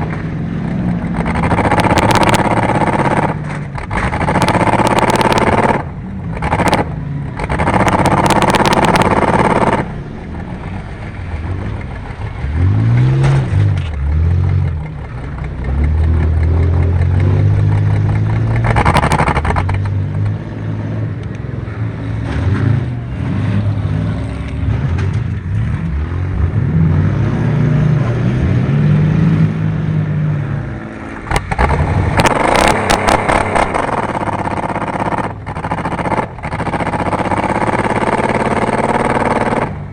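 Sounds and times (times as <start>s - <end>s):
rushing rattling noise: 0.0s - 20.5s, 31.0s - 39.9s
race car engine revving: 0.0s - 39.9s.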